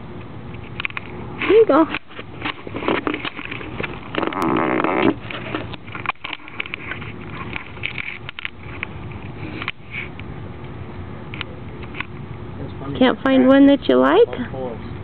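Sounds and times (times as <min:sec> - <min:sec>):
crackles and clicks: 0:00.2 - 0:12.2.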